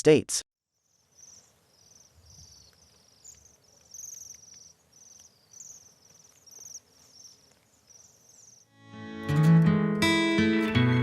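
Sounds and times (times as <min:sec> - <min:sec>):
birds calling in short high trills: 0:00.8 - 0:08.7.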